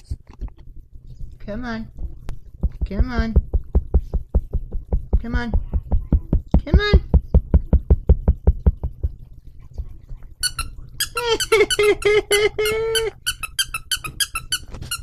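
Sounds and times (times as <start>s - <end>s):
soft low thumps: 1.8s - 10.4s
squeaky dog toy squeaking: 10.4s - 12.0s, 12.6s - 15.0s.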